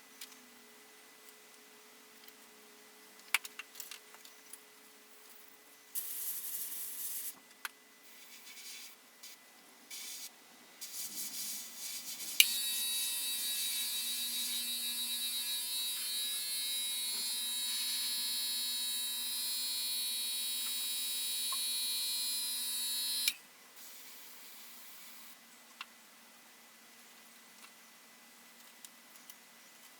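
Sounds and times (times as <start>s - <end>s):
air compressor humming: 12.4s - 23.4s.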